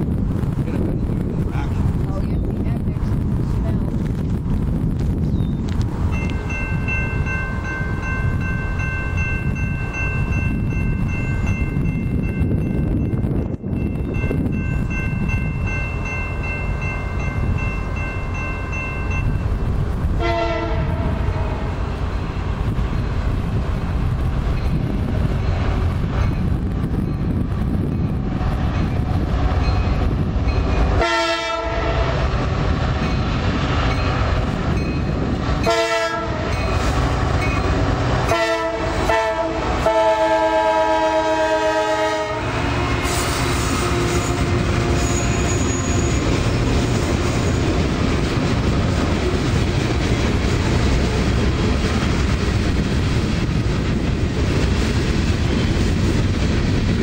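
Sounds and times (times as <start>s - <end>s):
train rumbling: 0.0s - 57.0s
locomotive horn blasts: 20.2s - 21.8s, 31.0s - 32.3s, 35.6s - 36.6s, 38.2s - 46.1s.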